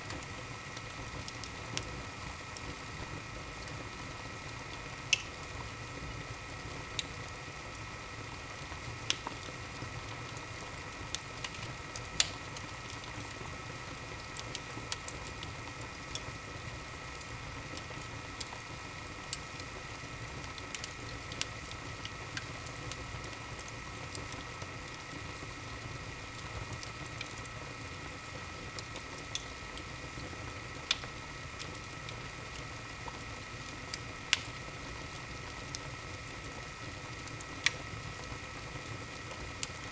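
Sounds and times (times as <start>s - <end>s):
fire burning: 0.0s - 39.9s
logs crackling and popping: 9.0s - 9.6s, 10.2s - 13.5s, 28.8s - 33.2s, 33.9s - 38.3s.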